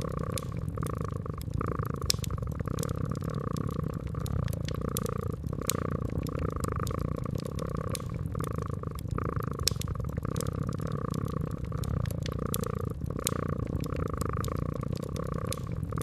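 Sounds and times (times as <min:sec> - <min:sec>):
cat purring: 0:00.0 - 0:16.0
wood fire crackling: 0:00.0 - 0:16.0.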